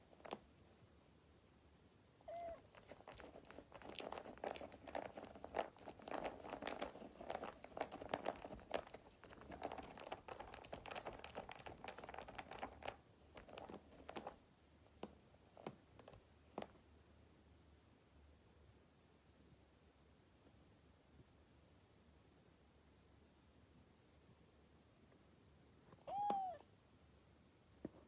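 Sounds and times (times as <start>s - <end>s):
kitten scratching in cat litter: 2.3s - 14.4s.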